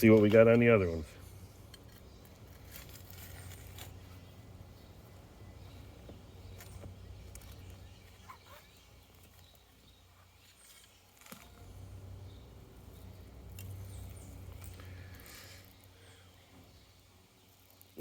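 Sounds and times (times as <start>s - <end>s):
hands digging in soil: 0.0s - 15.9s.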